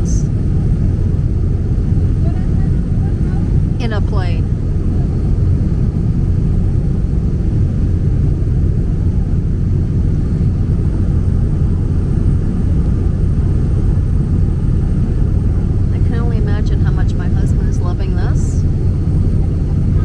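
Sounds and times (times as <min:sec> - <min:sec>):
propeller plane engine drone: 0:00.0 - 0:20.0.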